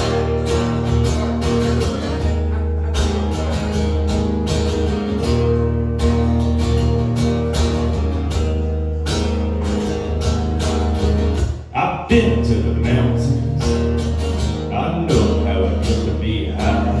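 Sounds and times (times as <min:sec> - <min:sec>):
bass notes: 0:00.0 - 0:17.0
guitar: 0:00.0 - 0:17.0.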